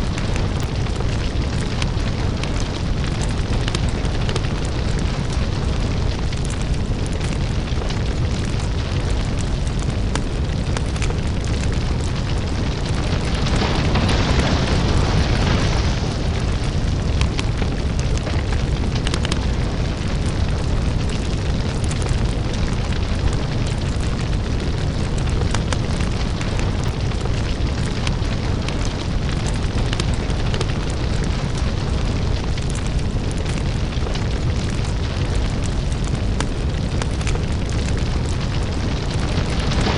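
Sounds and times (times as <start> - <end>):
deep rumble: 0.0 - 39.9
fire crackles and pops: 0.0 - 39.9.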